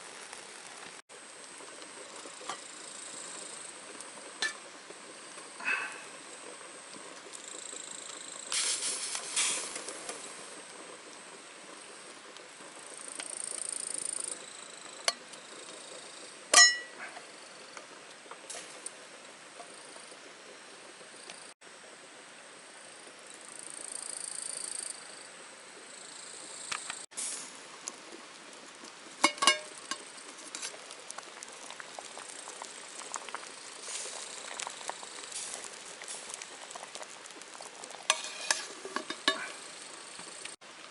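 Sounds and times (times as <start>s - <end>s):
food sizzling in a pan: 0.0s - 19.0s, 25.9s - 40.6s
metal utensil clinking on pan: 16.6s - 17.0s, 29.2s - 30.0s, 38.1s - 39.5s
metallic clink ringing: 16.6s - 17.0s.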